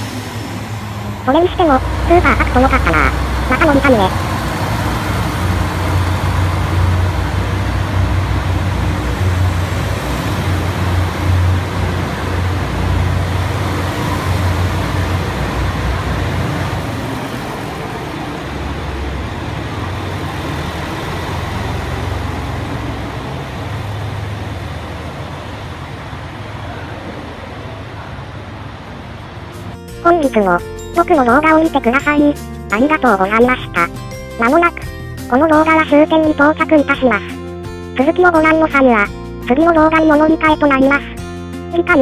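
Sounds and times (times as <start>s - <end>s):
passenger train rumbling past: 0.0s - 31.6s.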